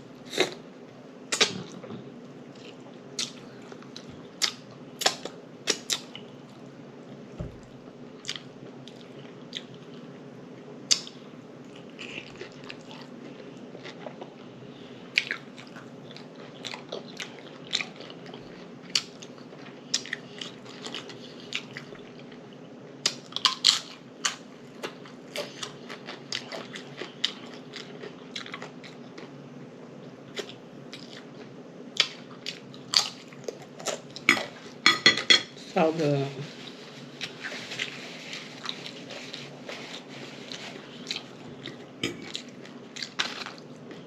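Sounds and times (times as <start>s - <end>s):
steady low hum: 0.0s - 44.0s
food crunching: 15.2s - 29.4s, 36.6s - 44.0s.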